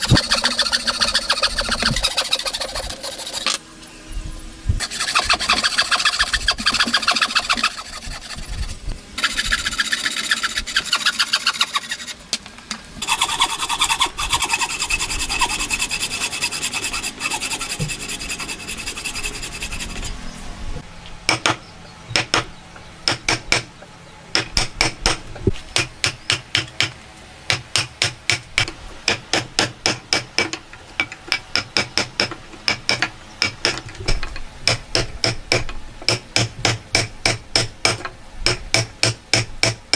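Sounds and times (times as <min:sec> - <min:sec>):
rasping strokes on wood: 0:00.0 - 0:03.6, 0:04.8 - 0:12.2, 0:13.0 - 0:20.2.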